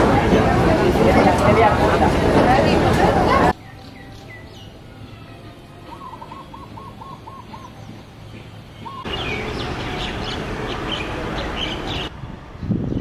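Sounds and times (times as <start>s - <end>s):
steady rush of background noise: 0.0s - 13.0s
small birds chirping: 3.5s - 12.1s.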